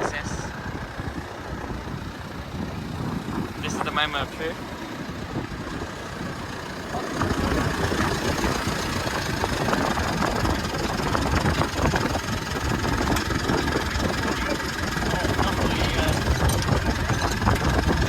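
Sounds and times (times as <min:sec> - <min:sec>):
engine idling roughly with knocking: 0:03.9 - 0:18.0.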